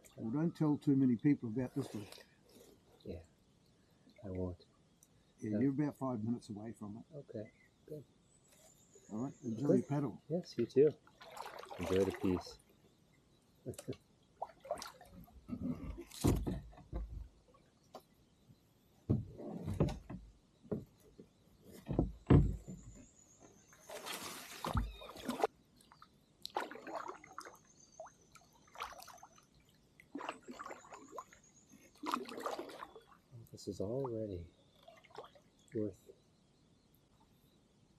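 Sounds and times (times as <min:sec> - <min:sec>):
paddle splashing in water: 0:11.1 - 0:12.6, 0:14.4 - 0:15.2, 0:23.8 - 0:25.5, 0:26.4 - 0:27.6, 0:28.7 - 0:29.4, 0:30.1 - 0:33.2
dull knocks: 0:16.2 - 0:17.3, 0:19.1 - 0:21.1, 0:21.8 - 0:23.0.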